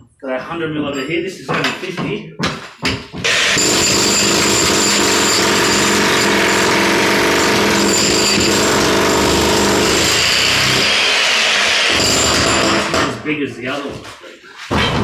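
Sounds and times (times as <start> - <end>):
jackhammer running: 3.2 - 13.1.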